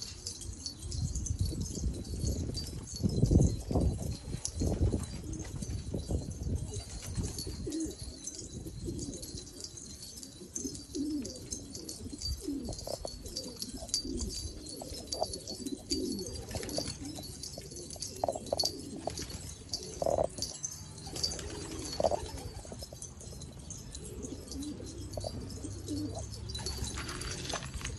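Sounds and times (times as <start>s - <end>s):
pigeons cooing: 0.0s - 27.9s.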